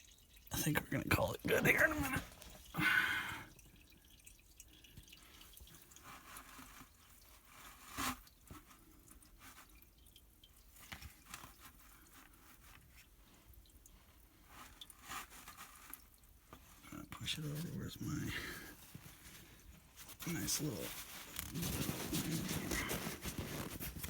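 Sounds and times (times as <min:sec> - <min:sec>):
oil dripping into a pan: 0:00.0 - 0:01.4, 0:02.2 - 0:07.5, 0:08.2 - 0:16.6.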